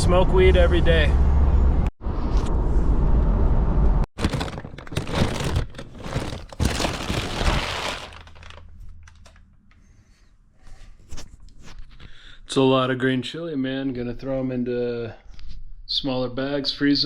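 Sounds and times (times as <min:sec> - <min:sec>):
crackling and rustling: 0:04.2 - 0:09.5.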